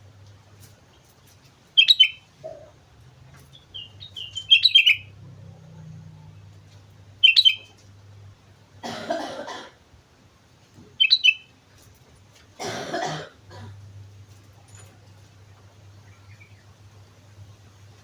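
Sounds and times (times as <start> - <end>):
bulbul chirpy song: 3.8 - 5.1, 7.2 - 7.7.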